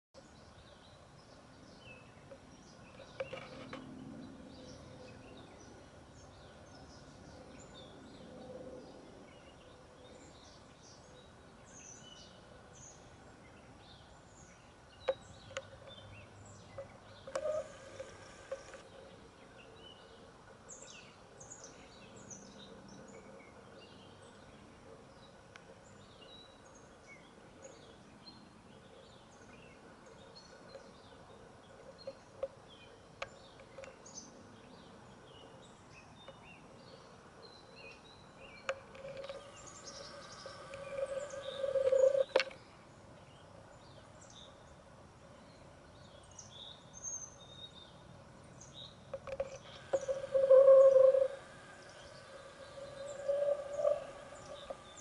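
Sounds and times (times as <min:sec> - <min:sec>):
birds chirping: 0:09.4 - 0:20.1, 0:25.2 - 0:42.7, 0:48.6 - 0:55.0
low steady hum: 0:38.2 - 0:46.1, 0:48.2 - 0:55.0.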